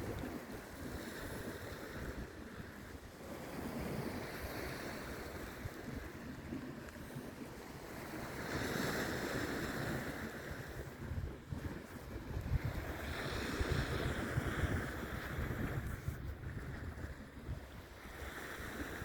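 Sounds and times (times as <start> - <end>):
sea waves washing in: 0.0 - 19.0
wind buffeting microphone: 7.1 - 19.0.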